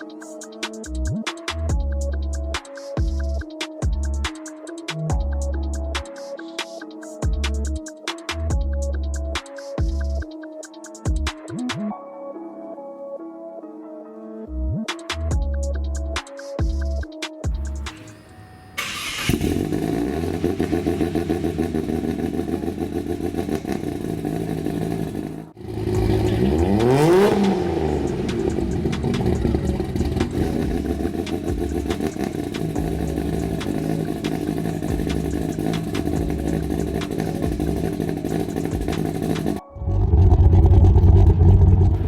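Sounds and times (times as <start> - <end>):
car engine idling: 18.8 - 42.0.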